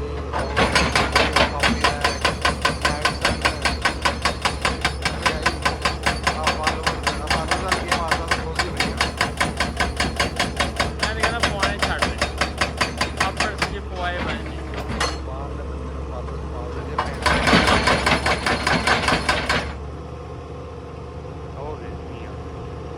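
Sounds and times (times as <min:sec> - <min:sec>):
hydraulic breaker hammering stone: 0:00.3 - 0:15.3, 0:16.9 - 0:19.8
low engine hum: 0:19.8 - 0:22.9.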